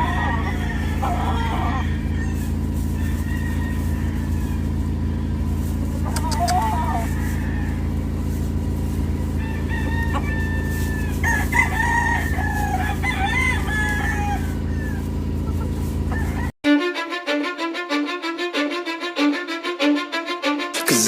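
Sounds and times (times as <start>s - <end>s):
roosters crowing: 0.0s - 16.6s.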